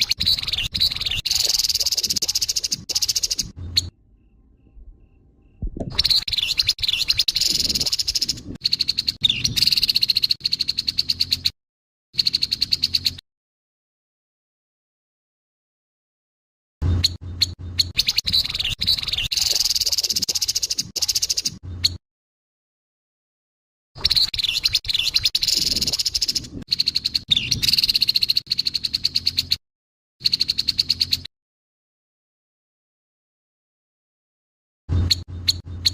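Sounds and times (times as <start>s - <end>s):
bird harsh rattling call: 0.0s - 3.9s, 6.0s - 11.5s, 17.0s - 21.6s, 24.0s - 29.6s.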